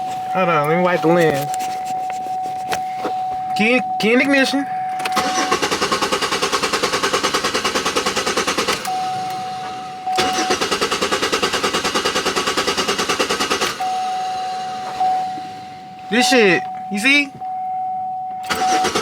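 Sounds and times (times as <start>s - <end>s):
single-tone warning chime: 0.0s - 5.8s, 8.9s - 10.8s, 13.7s - 19.0s
car starter clattering: 4.4s - 17.4s, 18.3s - 19.0s.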